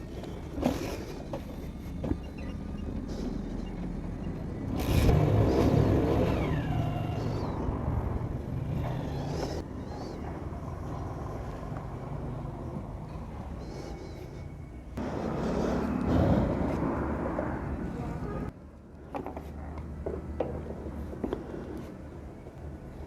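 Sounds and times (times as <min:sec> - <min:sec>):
road traffic rumble: 0:00.0 - 0:23.0
motor vehicle passing close: 0:01.8 - 0:13.9, 0:15.0 - 0:18.5.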